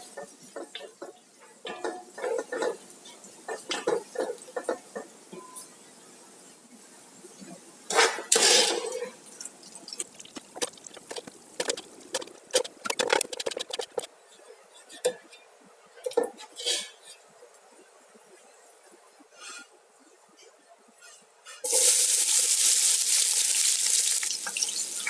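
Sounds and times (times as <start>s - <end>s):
dishes and utensils clinking: 0.0s - 2.8s, 3.5s - 5.7s, 7.9s - 9.2s.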